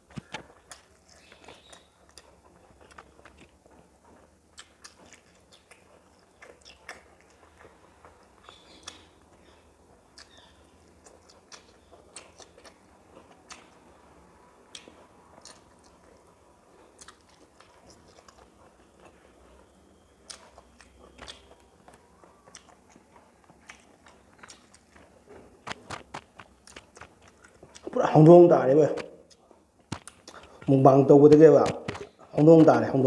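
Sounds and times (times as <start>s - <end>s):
faint chewing: 0.0s - 32.9s
sharp mouth clicks: 29.0s - 30.7s.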